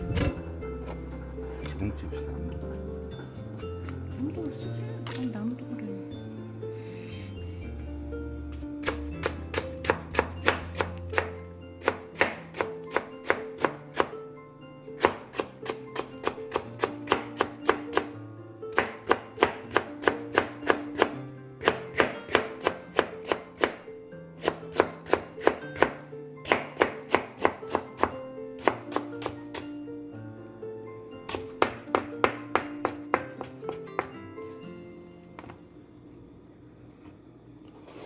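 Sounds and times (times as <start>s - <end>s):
background music: 0.0s - 36.8s.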